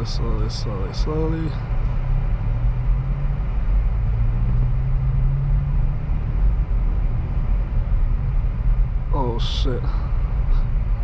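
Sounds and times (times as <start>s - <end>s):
car engine drone from inside cabin: 0.0s - 11.0s.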